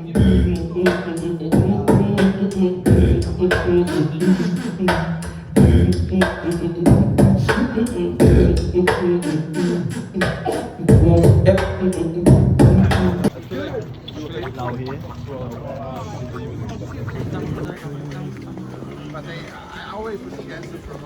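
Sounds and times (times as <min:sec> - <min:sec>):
beatboxing percussive hits: 0:00.1 - 0:13.3.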